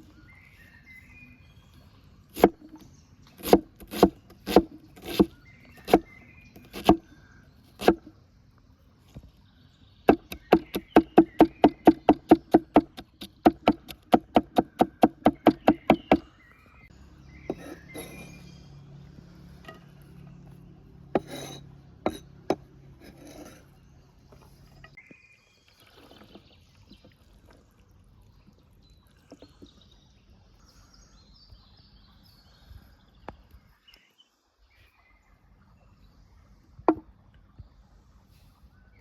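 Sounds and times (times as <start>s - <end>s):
rubbing and handling sounds: 17.5s - 18.5s, 21.1s - 23.8s.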